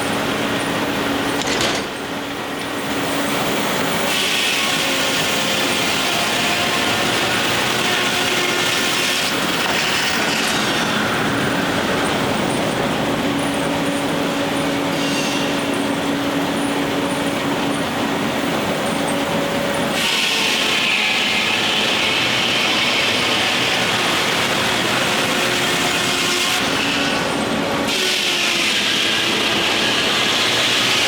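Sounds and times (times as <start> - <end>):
harsh bright machine noise: 0.0 - 31.0
sawmill machinery noise: 0.0 - 31.0.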